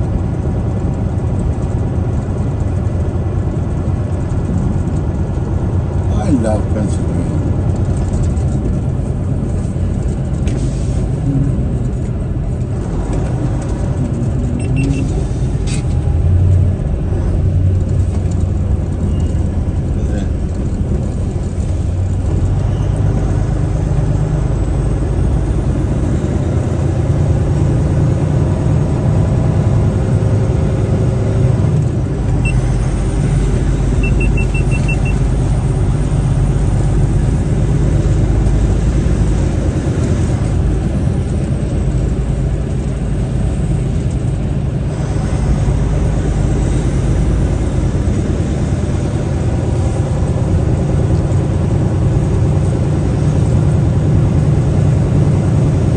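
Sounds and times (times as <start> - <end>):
truck engine and road noise: 0.0 - 55.9
faint high beeps: 14.6 - 15.1, 34.0 - 35.2.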